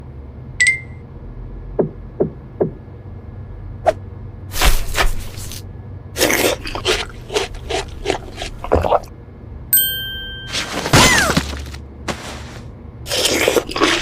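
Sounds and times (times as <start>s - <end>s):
click with ringing tone: 0.6s - 1.0s
crunchy crackling: 6.2s - 9.1s, 10.9s - 14.0s.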